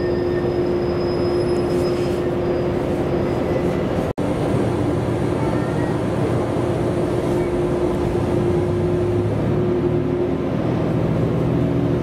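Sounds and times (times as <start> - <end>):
steady brake squealing: 0.0 - 4.0
railcar running slowly: 0.0 - 12.0.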